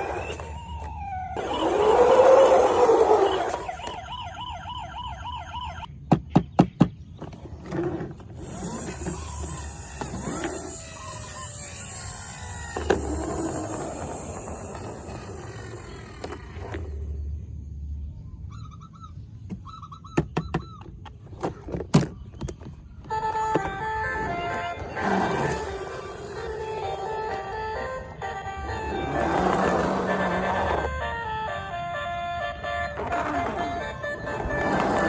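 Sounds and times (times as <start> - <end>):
gliding toy sounds: 0.0 - 4.2, 7.3 - 17.3, 23.0 - 31.4, 32.8 - 35.0
toy siren wavering tone: 0.0 - 5.9, 8.4 - 17.2, 23.0 - 35.0.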